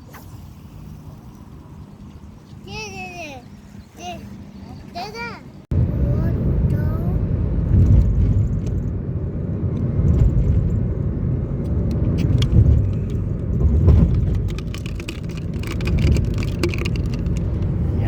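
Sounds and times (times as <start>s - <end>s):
vehicle rumble: 0.0s - 18.0s
light clicks and rattles: 11.6s - 17.8s.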